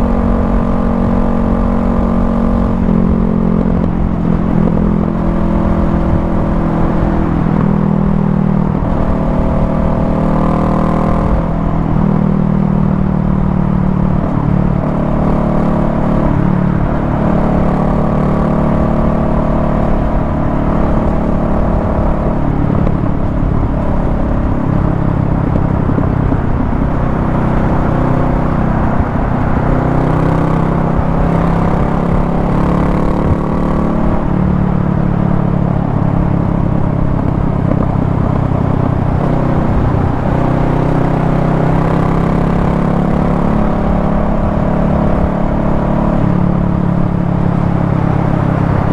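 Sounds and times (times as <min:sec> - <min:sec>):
motorcycle engine at highway speed: 0:00.0 - 0:48.9
wind and road rumble: 0:00.0 - 0:48.9.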